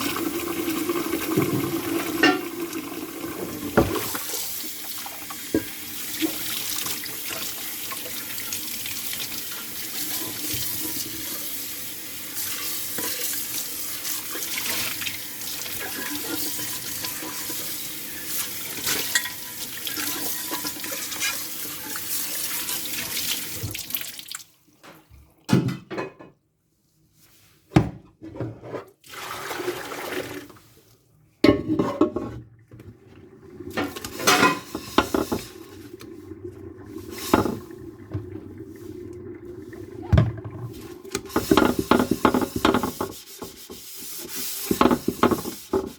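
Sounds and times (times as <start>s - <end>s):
tap running into sink: 1.3s - 2.5s, 3.4s - 4.3s, 23.6s - 23.9s, 37.3s - 38.4s, 40.0s - 43.8s, 44.7s - 45.9s
dishes clattering: 1.4s - 2.5s, 18.8s - 21.4s, 25.5s - 26.4s, 31.4s - 32.4s, 33.7s - 35.5s
dishes clinking in water: 1.4s - 2.6s, 18.2s - 22.0s, 24.8s - 26.4s, 31.4s - 32.4s, 33.7s - 35.6s.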